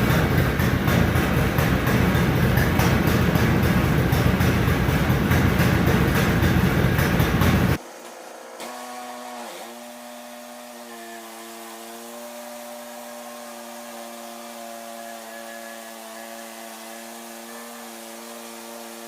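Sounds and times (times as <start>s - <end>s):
motor humming: 0.0s - 10.0s.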